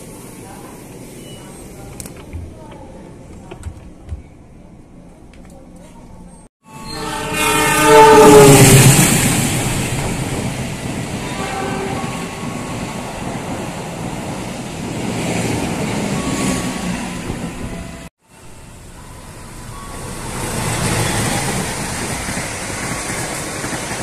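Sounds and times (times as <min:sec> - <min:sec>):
train cars rumbling on rails: 0:06.1 - 0:24.0
train horn: 0:06.6 - 0:09.1, 0:11.2 - 0:12.6.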